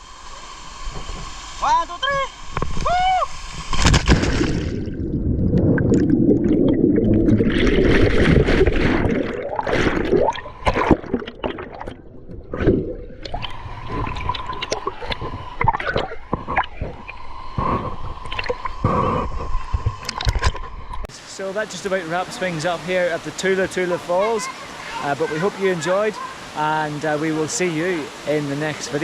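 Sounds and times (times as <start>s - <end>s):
muffled underwater churning water: 0.0s - 21.2s
soft underwater gurgling: 2.4s - 21.1s.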